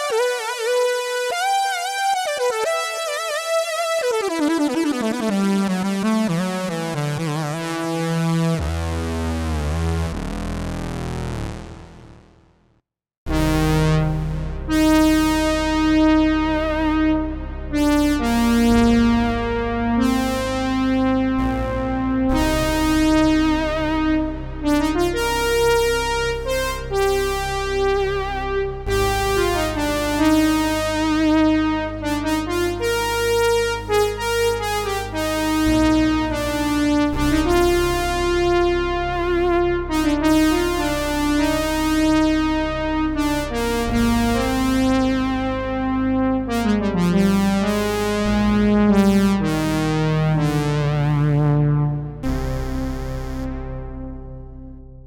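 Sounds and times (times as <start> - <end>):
synth chords and melody: 0.0 - 12.3, 13.3 - 55.0
synth bass note: 13.3 - 55.0.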